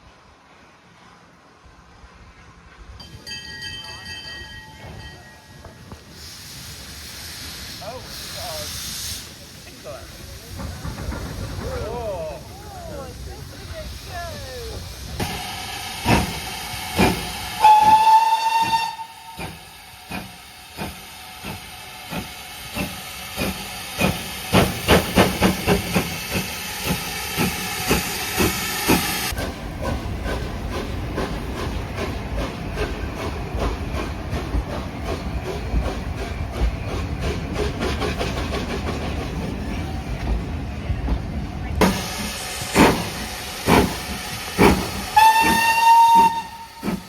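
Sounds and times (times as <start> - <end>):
steam hissing: 4.9 - 47.0
steam locomotive whistle: 15.2 - 19.6, 45.1 - 47.0
locomotive exhaust beats: 16.0 - 47.0.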